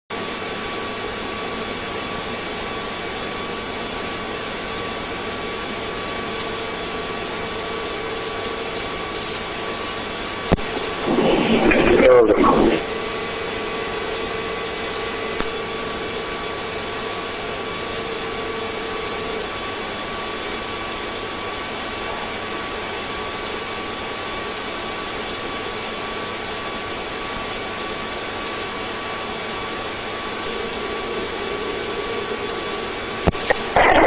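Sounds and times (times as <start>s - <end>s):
helicopter engine and rotor: 0.2s - 33.7s
faint whining tones: 28.4s - 34.0s.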